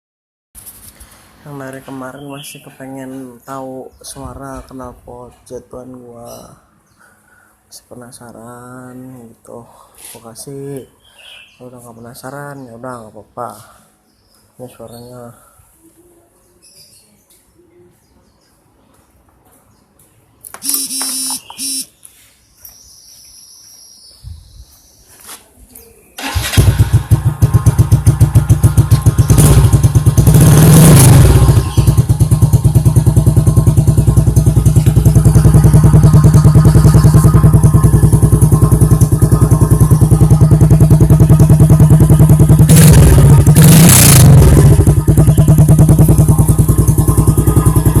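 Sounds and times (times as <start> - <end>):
motorcycle engine starting and idling: 26.2 - 48.0.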